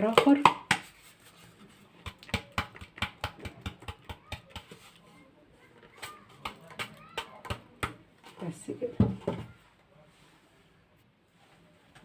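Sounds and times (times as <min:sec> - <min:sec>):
utensil tapping against bowl: 0:02.0 - 0:04.8.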